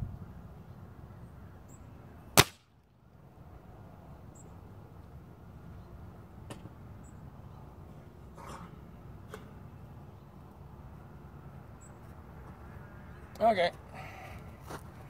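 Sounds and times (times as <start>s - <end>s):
wind rumbling on microphone: 0.0s - 0.6s
air rifle shot: 2.4s - 2.7s.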